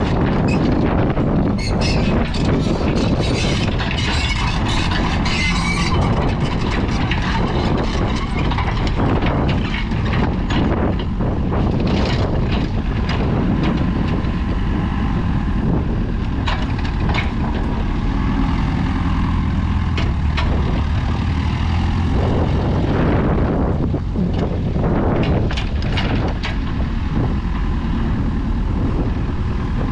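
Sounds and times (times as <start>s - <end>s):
diesel engine running: 0.0s - 29.9s
machine clanks and knocks: 2.0s - 14.4s, 16.4s - 17.9s, 19.6s - 21.0s, 24.3s - 26.8s.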